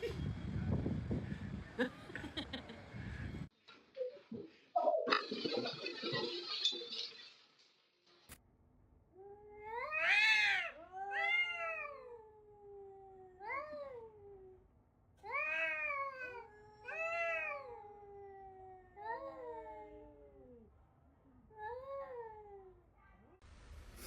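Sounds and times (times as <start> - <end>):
cat meowing and yowling: 9.3 - 14.6, 15.2 - 20.6.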